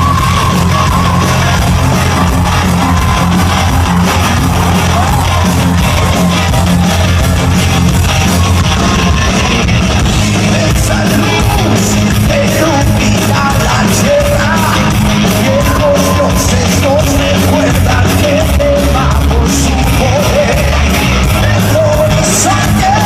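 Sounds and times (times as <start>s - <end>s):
rock band playing live: 0.0s - 23.0s
person singing or yelling: 8.7s - 23.0s.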